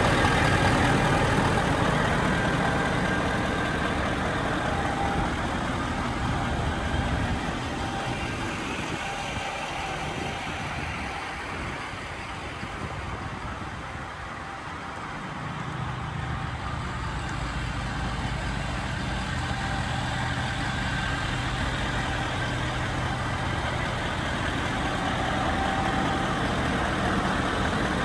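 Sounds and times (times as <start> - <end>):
pickup engine idling: 0.0 - 28.0.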